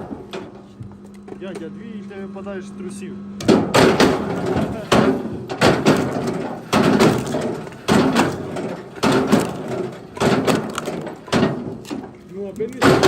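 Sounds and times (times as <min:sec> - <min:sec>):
firewood knocking: 0:03.4 - 0:13.0.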